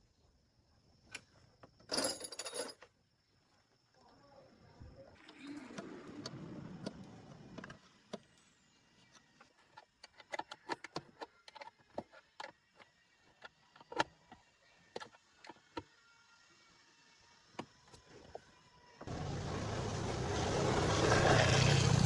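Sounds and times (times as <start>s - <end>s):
rush of noise: 19.1s - 22.0s.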